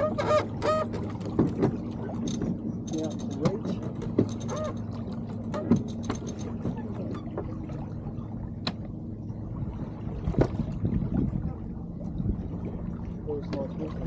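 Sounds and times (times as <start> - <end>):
water washing along boat hull: 0.0 - 14.0
sharp knocks of boat gear: 5.5 - 6.8.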